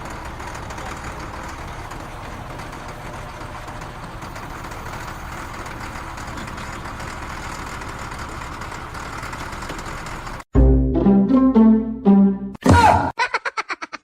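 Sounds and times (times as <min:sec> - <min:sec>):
motor running with rattle: 0:00.0 - 0:10.5.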